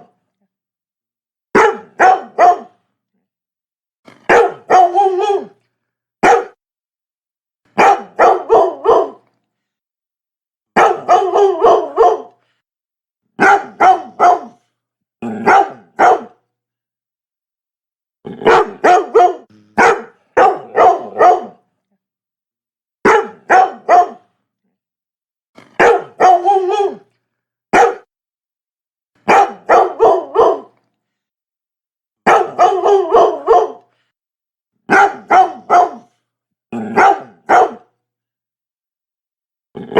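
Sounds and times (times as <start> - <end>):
dog barking: 1.5 - 2.8, 4.2 - 5.6, 6.2 - 6.6, 7.8 - 9.3, 10.8 - 12.4, 13.4 - 14.7, 15.4 - 16.4, 18.4 - 21.6, 23.0 - 24.3, 25.6 - 27.1, 27.7 - 28.1, 29.2 - 30.8, 32.2 - 33.9, 34.9 - 36.2, 36.8 - 38.0.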